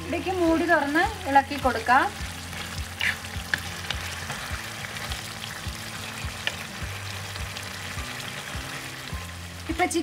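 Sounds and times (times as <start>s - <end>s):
curry sizzling in a pan: 0.0s - 10.0s
wooden spatula scraping a pan: 2.4s - 4.4s.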